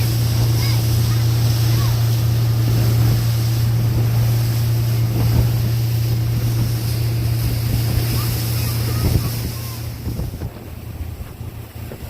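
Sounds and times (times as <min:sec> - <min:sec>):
motorboat engine drone: 0:00.0 - 0:12.0
water rushing past hull: 0:00.0 - 0:12.0
wind buffeting microphone: 0:00.0 - 0:12.0.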